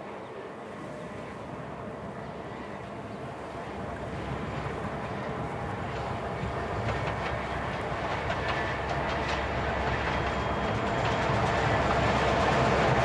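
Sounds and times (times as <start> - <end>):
freight train rumble: 0.0 - 13.0
train wheels clicking on track: 4.3 - 13.0.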